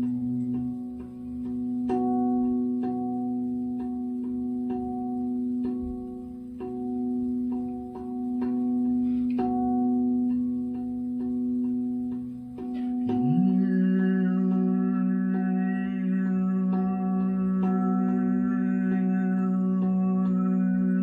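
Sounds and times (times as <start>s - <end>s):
singing bowls ringing: 6.7s - 21.0s.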